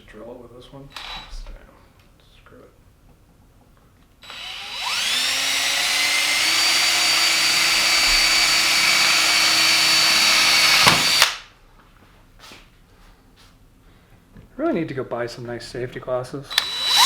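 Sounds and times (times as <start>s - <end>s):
drill click: 4.2s - 11.4s, 16.5s - 17.0s
electric drill whining: 4.2s - 11.4s, 16.5s - 17.0s.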